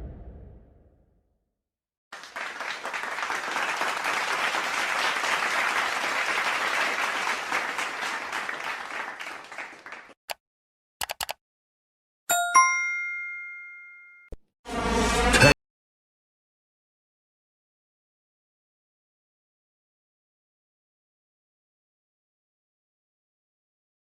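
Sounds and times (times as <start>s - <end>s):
crowd applauding: 2.1s - 10.2s
short clicks: 11.0s - 11.4s
bell ding ringing out: 12.3s - 14.3s.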